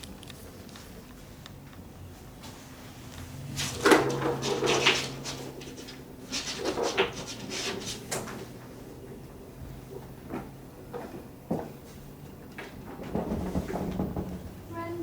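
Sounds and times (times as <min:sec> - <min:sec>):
kittens scuffling and scratching: 0:02.2 - 0:08.6.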